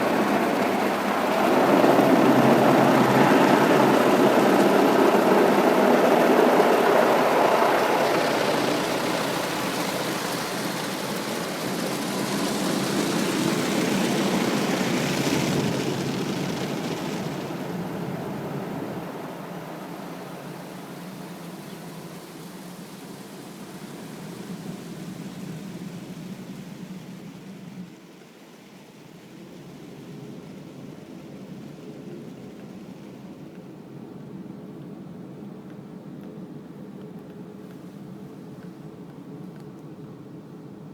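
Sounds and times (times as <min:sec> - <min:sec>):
car wash machinery rushing: 0:00.0 - 0:27.9.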